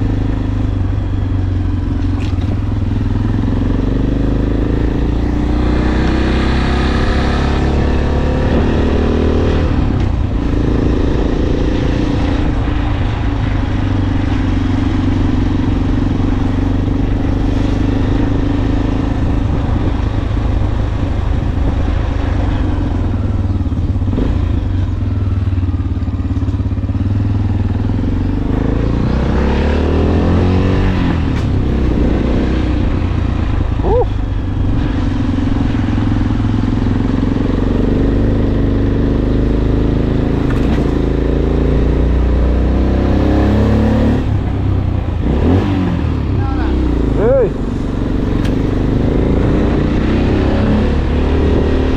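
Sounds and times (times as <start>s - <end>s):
motorcycle engine running: 0.0s - 51.9s
wind on microphone: 41.7s - 51.9s.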